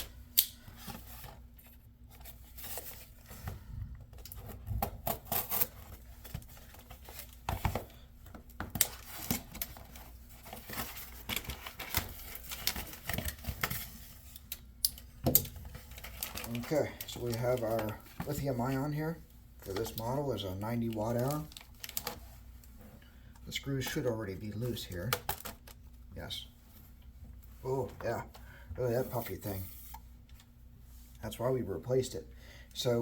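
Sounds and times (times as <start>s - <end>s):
packaging crinkling and tearing: 8.8s - 13.8s, 15.8s - 18.5s, 19.7s - 22.2s.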